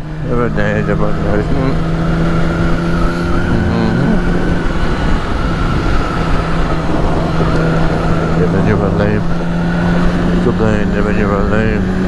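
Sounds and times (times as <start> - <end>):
motorcycle engine cruising: 0.0 - 12.0
wind rushing over microphone: 1.7 - 10.4.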